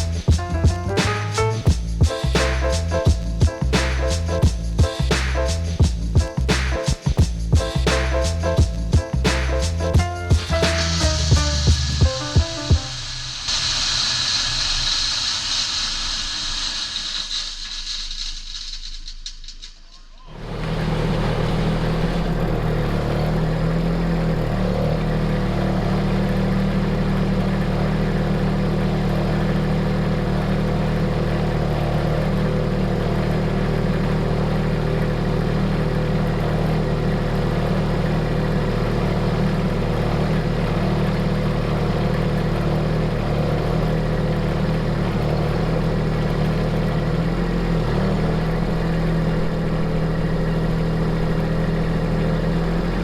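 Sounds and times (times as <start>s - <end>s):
heavy machine engine humming: 7.6s - 13.4s, 20.3s - 53.0s.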